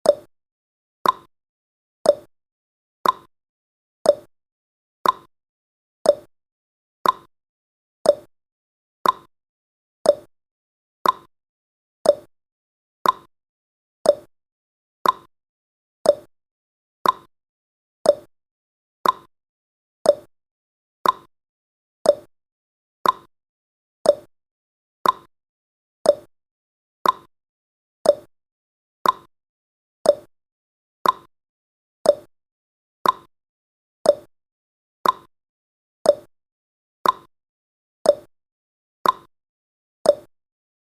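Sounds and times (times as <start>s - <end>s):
clock ticking: 3.0s - 3.3s, 5.0s - 5.3s, 7.0s - 7.3s, 9.0s - 9.3s, 11.0s - 11.3s, 13.0s - 13.3s, 15.0s - 15.3s, 16.1s - 16.3s, 17.0s - 17.3s, 19.0s - 19.3s, 21.0s - 21.3s, 22.1s - 22.3s, 23.0s - 23.3s, 24.1s - 24.3s, 25.0s - 25.3s, 26.1s - 26.3s, 27.0s - 27.3s, 28.0s - 28.3s, 29.0s - 29.3s, 30.1s - 30.3s, 31.0s - 31.3s, 33.0s - 33.3s, 34.1s - 34.3s, 35.0s - 35.3s, 37.0s - 37.3s, 38.1s - 38.3s, 39.0s - 39.3s, 40.1s - 40.3s.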